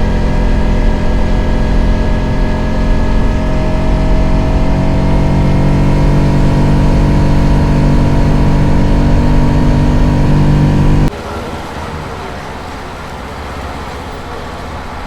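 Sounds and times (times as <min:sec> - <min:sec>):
motorcycle engine running: 0:00.0 - 0:11.1
traffic noise: 0:00.0 - 0:15.0.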